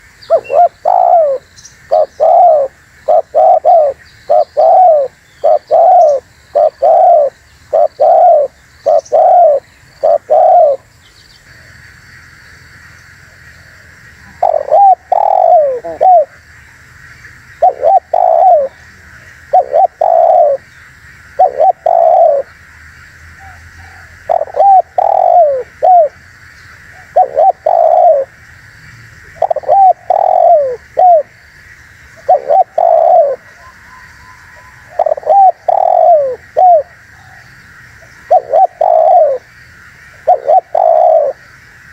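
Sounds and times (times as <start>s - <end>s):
dove cooing: 0.0s - 10.9s, 13.2s - 16.4s, 17.6s - 20.7s, 21.3s - 22.5s, 23.4s - 26.2s, 26.9s - 28.4s, 29.2s - 31.4s, 32.2s - 39.5s, 40.1s - 41.5s
faint steady hiss: 0.0s - 41.9s.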